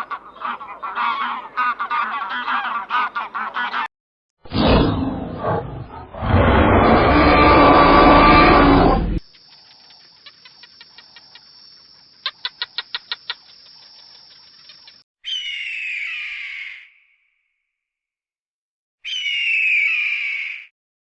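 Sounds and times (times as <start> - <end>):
rough animal roar: 4.5 - 9.2
bird chirping: 9.3 - 16.4.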